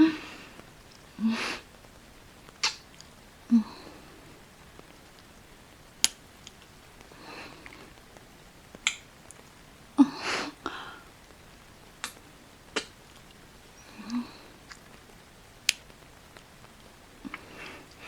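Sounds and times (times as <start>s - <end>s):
wet kissing lip smacks: 2.6s - 3.1s, 12.0s - 12.2s, 12.8s - 13.4s
short breath: 10.0s - 11.1s.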